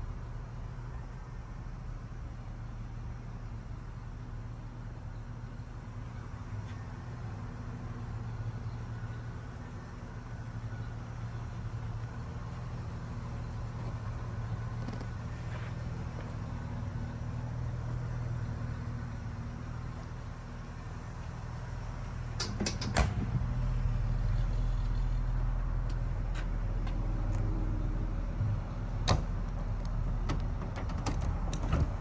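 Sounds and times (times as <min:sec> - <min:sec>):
car engine humming: 0:06.4 - 0:22.6, 0:23.3 - 0:32.0.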